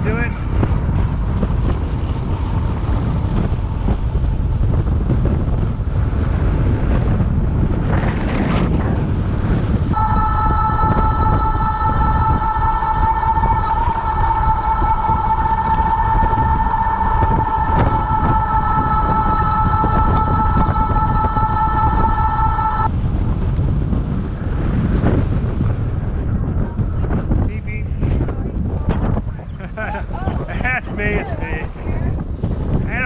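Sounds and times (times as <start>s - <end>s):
wind rumbling on microphone: 0.0s - 33.0s
loud horn steady note: 9.9s - 22.9s.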